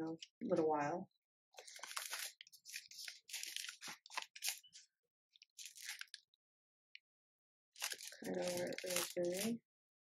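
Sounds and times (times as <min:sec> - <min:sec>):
plastic wrappers crinkling: 0:01.6 - 0:04.8, 0:05.4 - 0:06.3, 0:07.8 - 0:09.6.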